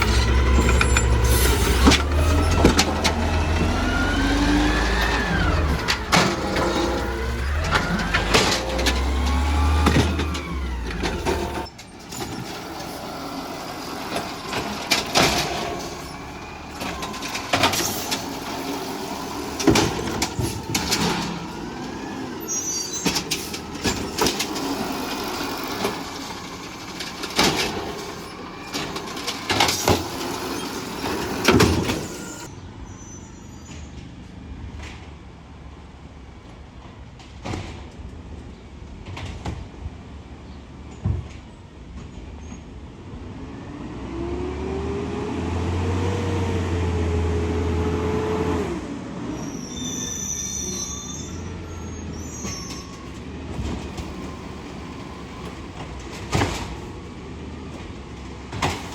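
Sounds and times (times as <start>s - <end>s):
metallic bangs and clanks: 0.0s - 32.5s
garbage truck engine rumbling: 0.0s - 58.9s
brief squeals: 15.4s - 34.0s, 49.2s - 53.3s.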